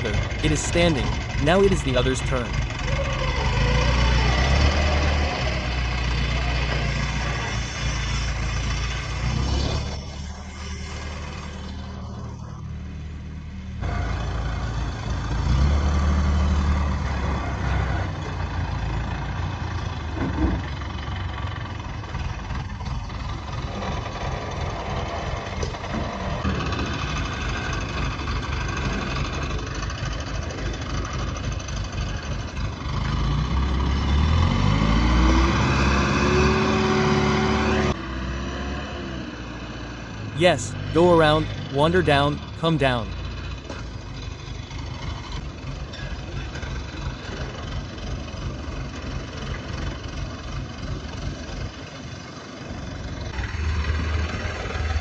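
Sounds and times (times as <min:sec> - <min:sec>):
engine running: 0:00.0 - 0:33.8.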